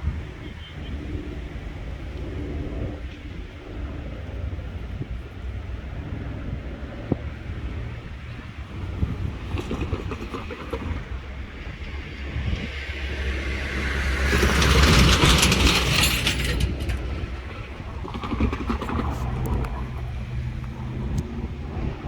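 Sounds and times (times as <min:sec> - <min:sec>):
train passing: 0:00.0 - 0:22.0
train wheels clicking: 0:08.5 - 0:21.8.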